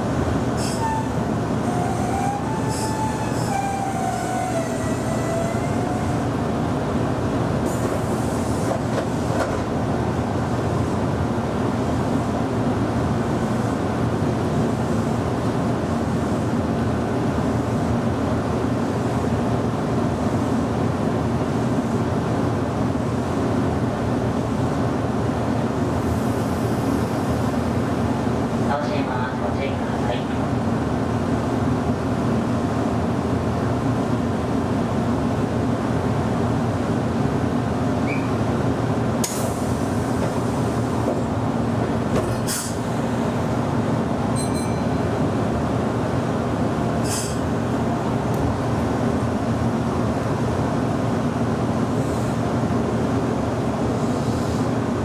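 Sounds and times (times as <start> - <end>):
electric train rumbling: 0.0 - 55.0
train motor whine: 0.6 - 6.5.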